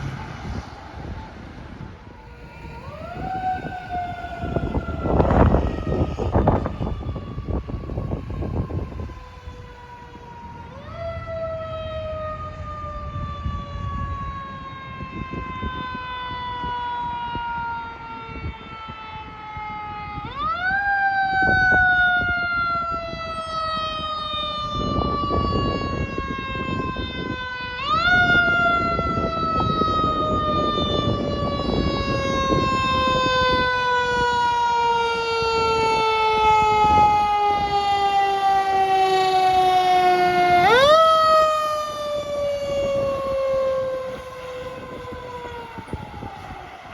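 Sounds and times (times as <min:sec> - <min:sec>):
truck rumble: 0:00.0 - 0:11.3.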